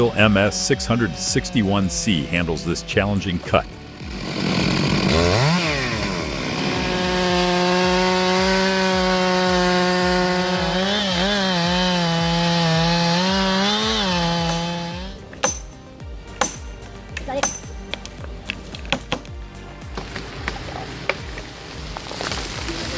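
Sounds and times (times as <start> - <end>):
chainsaw cutting wood: 0.0 - 22.7.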